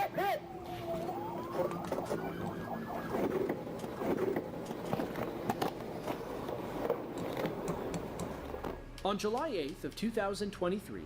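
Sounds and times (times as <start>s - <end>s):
siren rising tone: 0.0s - 4.5s
traffic noise: 0.1s - 8.8s.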